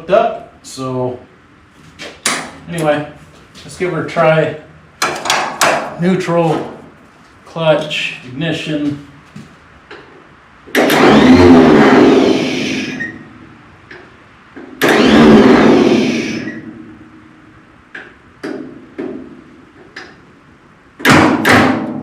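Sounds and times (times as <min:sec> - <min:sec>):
starter cranking engine: 0:10.7 - 0:13.0, 0:14.8 - 0:16.7.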